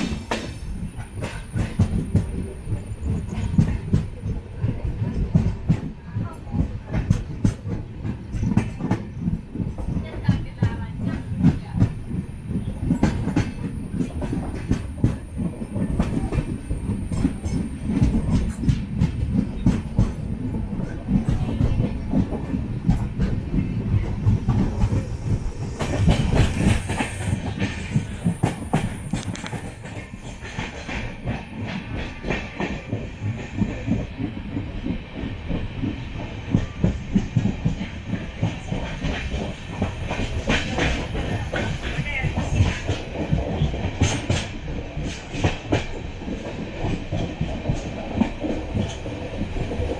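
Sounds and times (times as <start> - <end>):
train wheels clattering on track: 0.0 - 49.9
heavy low rumble: 13.7 - 30.4.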